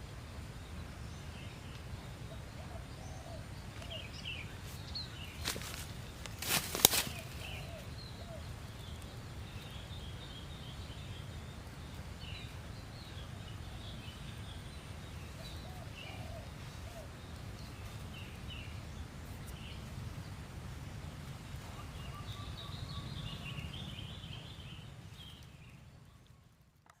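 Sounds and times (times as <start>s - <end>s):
low rumble of wind: 0.0s - 26.9s
small birds chirping: 0.0s - 27.0s.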